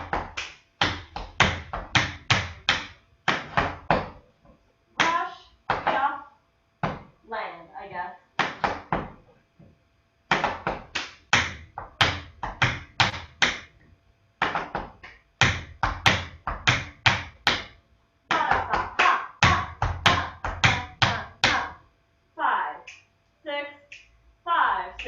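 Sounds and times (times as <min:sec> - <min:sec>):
tap shoes on hard floor: 0:14.4 - 0:17.7.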